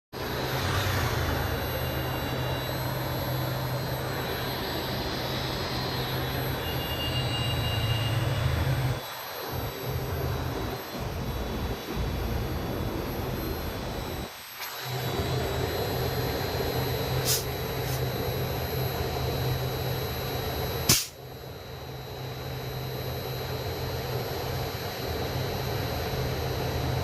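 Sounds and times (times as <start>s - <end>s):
mechanical hum and whir: 0.1s - 27.0s
sharp loud click: 20.9s - 21.2s.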